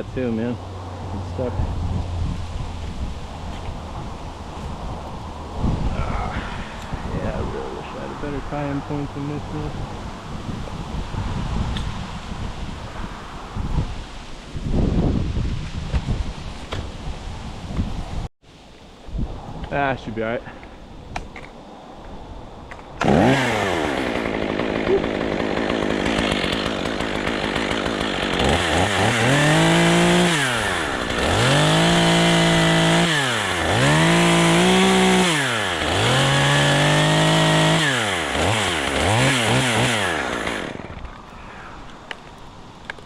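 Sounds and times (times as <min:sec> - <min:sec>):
chainsaw revving: 0:23.0 - 0:41.2.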